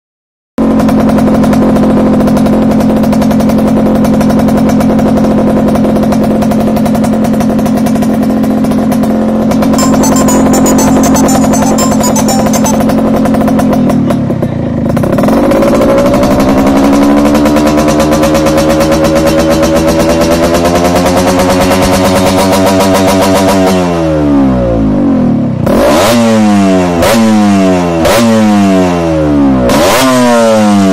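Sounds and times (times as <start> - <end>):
two-stroke engine running: 0.6 - 9.6
higher ringing tone: 9.8 - 13.2
two-stroke motorcycle engine revving: 14.9 - 24.0, 25.5 - 30.9.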